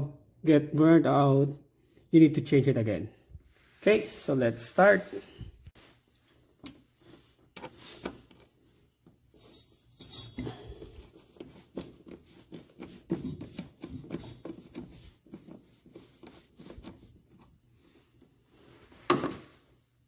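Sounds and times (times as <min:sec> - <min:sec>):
hands rubbing plastic: 0:10.8 - 0:19.1.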